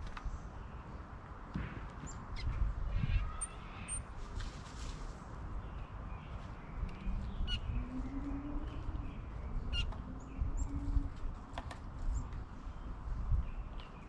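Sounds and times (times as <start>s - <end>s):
birds chirping: 5.4s - 14.0s.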